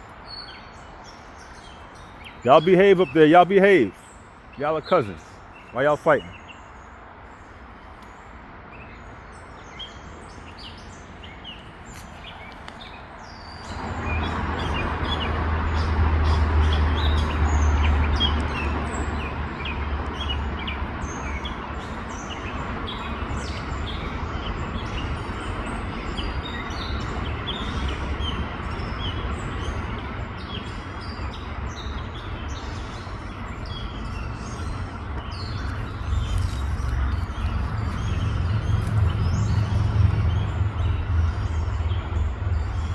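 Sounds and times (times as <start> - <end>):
birds chirping and squabbling: 32.2 - 42.9
steady low rumbling: 34.3 - 42.9.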